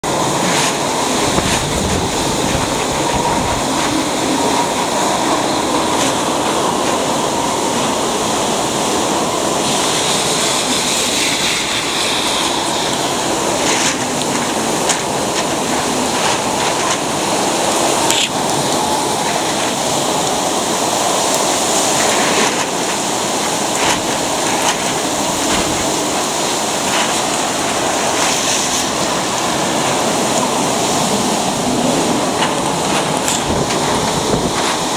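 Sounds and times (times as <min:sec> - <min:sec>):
storm wind and water rushing: 0:00.0 - 0:34.9.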